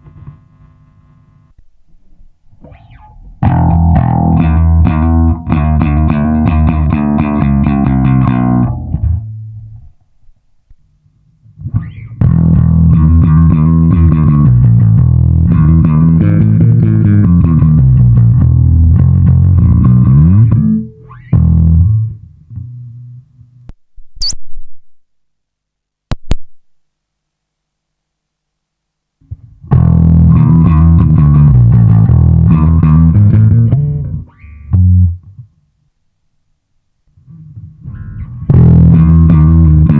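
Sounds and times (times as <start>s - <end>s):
electric bass playing: 2.5s - 10.0s, 11.6s - 23.3s, 29.3s - 35.5s, 37.3s - 39.9s.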